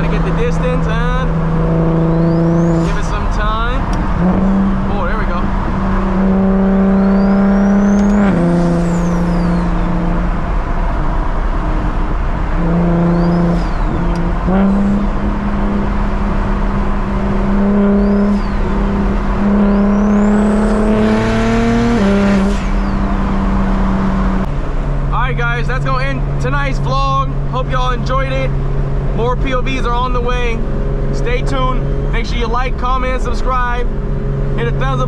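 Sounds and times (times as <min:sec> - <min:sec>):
car engine running: 0:00.0 - 0:35.0
turbo whistle: 0:06.9 - 0:09.9.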